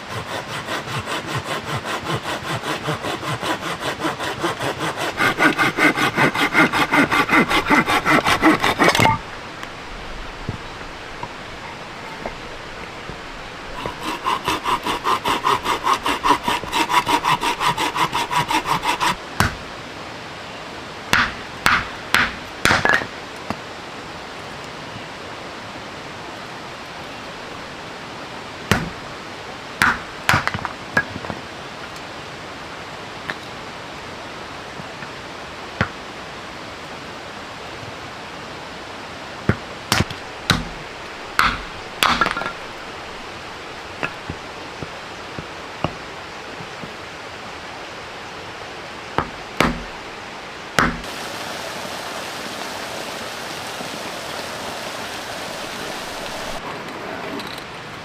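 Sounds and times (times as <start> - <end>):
hand saw cutting wood: 0.0 - 9.2, 13.7 - 19.2
rain hiss: 8.8 - 15.0, 19.2 - 58.0.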